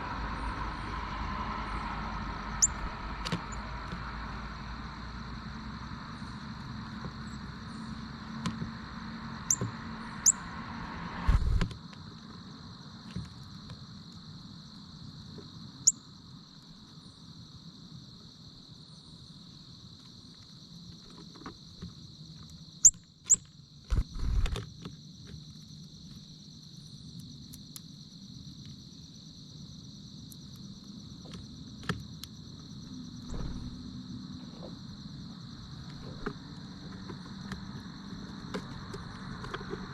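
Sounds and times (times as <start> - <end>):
low traffic rumble: 0.0 - 11.9, 30.6 - 39.9
insects chirring: 0.0 - 39.9
bird chirps: 2.6 - 3.7, 9.4 - 10.5.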